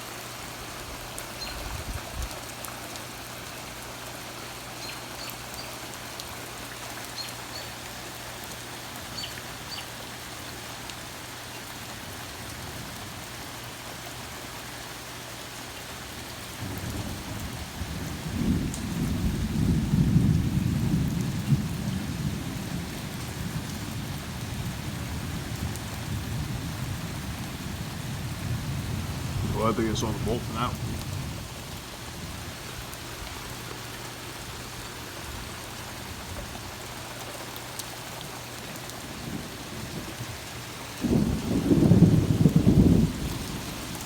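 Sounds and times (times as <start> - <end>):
heavy rain: 0.0 - 44.0
rolling thunder rumble: 16.6 - 32.6, 41.0 - 44.0.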